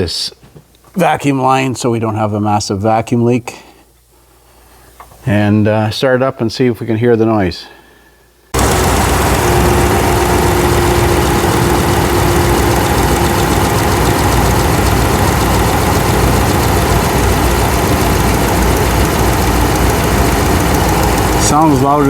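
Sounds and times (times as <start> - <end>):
car engine idling: 8.6 - 22.0
valve train ticking: 8.6 - 22.0.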